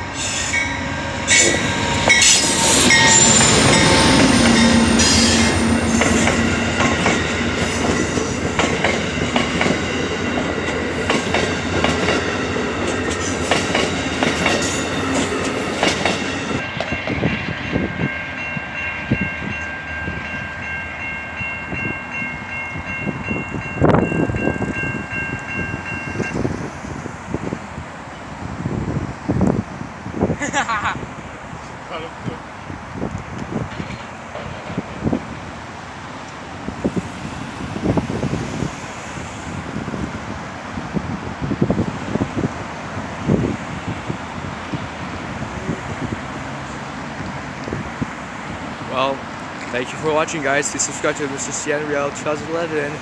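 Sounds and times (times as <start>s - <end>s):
crossing warning signal ringing: 0.0s - 16.7s
train wheels clattering: 0.2s - 17.2s.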